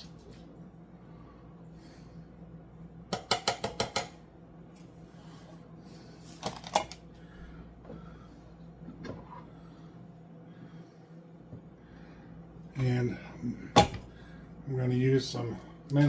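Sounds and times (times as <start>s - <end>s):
sharp metal taps on pot: 3.1s - 4.2s.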